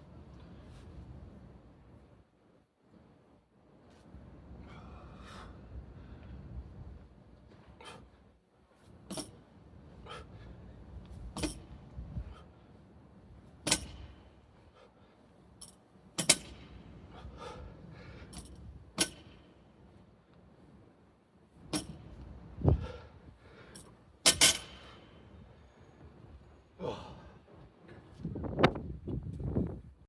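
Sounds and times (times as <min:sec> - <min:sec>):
short metallic ring: 0:23.8 - 0:24.9.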